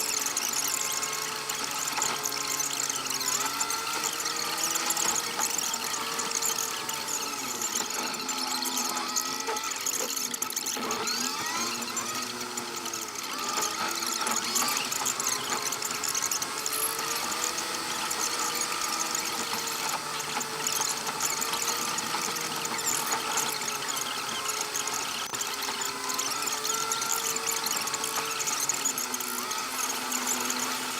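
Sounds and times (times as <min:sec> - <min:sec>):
engine squealing whine: 0:00.0 - 0:30.9.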